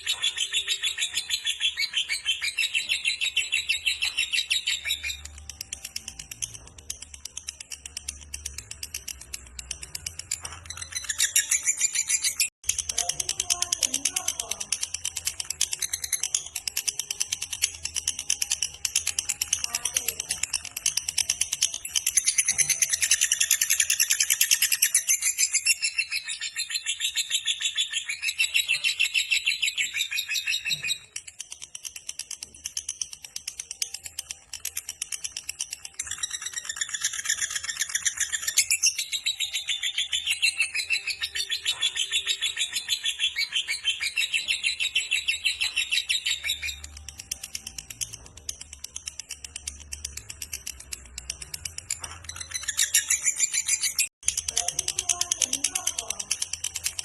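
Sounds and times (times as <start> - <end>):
lovebird chattering: 0.0 - 57.0.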